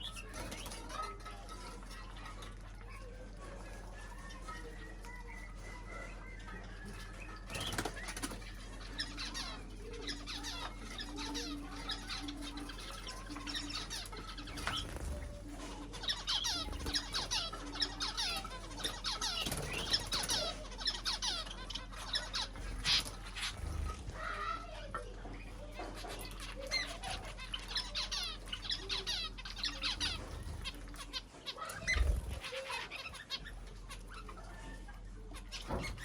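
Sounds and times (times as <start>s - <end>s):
cage birds chirping: 0.0s - 36.0s
wing flutters: 10.1s - 24.7s, 25.4s - 34.2s.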